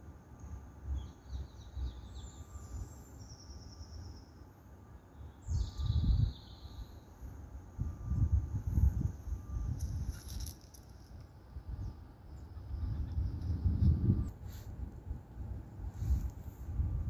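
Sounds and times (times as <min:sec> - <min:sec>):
small birds singing: 0:00.4 - 0:07.3
wind buffeting microphone: 0:05.4 - 0:06.4, 0:07.8 - 0:10.5, 0:11.6 - 0:17.0.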